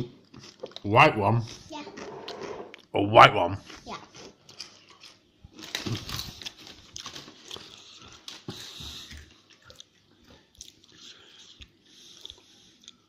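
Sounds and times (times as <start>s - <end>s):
crunching tortilla chips: 4.1s - 10.0s.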